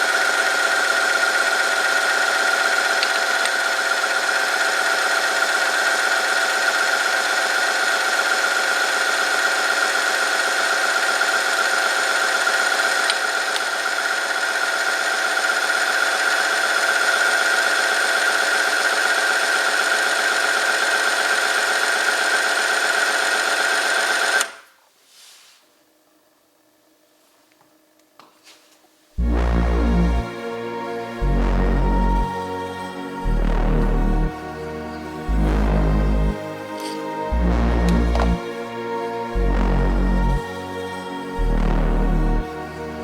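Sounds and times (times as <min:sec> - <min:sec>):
machine whining and grinding: 0:29.2 - 0:43.0.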